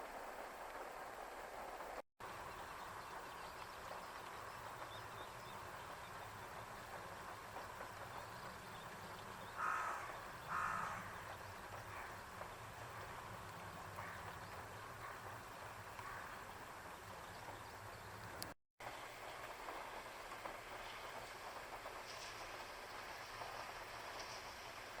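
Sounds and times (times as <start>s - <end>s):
bird cawing: 9.6s - 11.3s, 14.0s - 14.3s, 16.0s - 16.4s.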